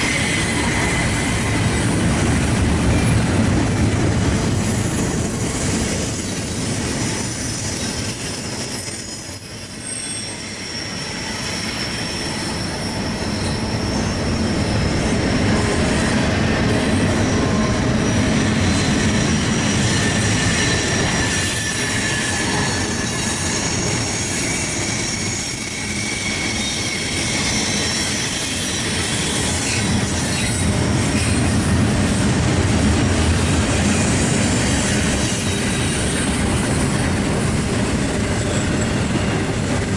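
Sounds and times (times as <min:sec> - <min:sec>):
train cars rumbling past: 0:00.0 - 0:39.9
wheel squeal: 0:04.6 - 0:31.8, 0:33.8 - 0:37.0.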